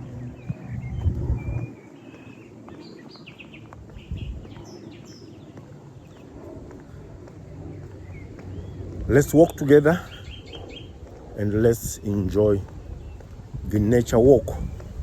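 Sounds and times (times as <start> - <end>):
low background rumble: 0.0 - 1.7, 5.9 - 15.0
small birds chirping: 0.0 - 15.0.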